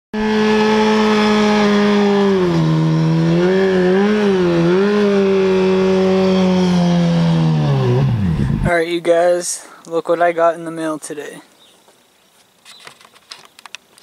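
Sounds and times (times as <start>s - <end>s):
car engine at high revs: 0.2s - 8.7s.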